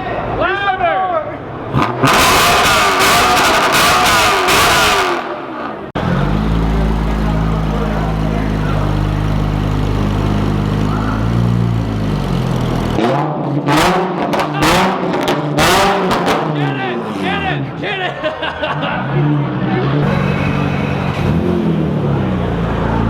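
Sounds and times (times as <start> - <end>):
car engine at steady revs: 5.9 - 14.1.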